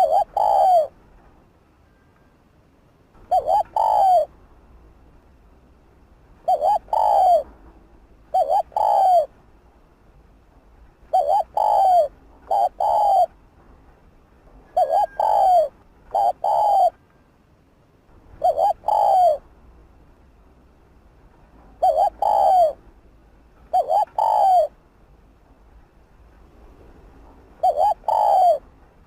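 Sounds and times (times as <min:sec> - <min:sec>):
dove cooing: 0:00.0 - 0:01.0, 0:03.2 - 0:04.3, 0:06.4 - 0:07.6, 0:08.3 - 0:09.3, 0:11.1 - 0:13.4, 0:14.7 - 0:17.0, 0:18.4 - 0:19.5, 0:21.8 - 0:22.8, 0:23.7 - 0:24.8, 0:27.6 - 0:28.7.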